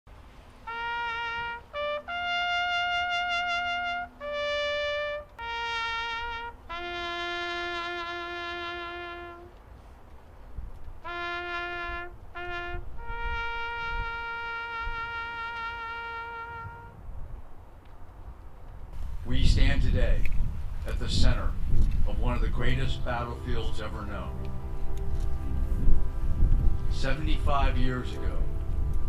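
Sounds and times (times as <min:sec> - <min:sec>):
solo brass horn melody: 0:00.4 - 0:09.9, 0:11.0 - 0:17.1, 0:22.1 - 0:29.0.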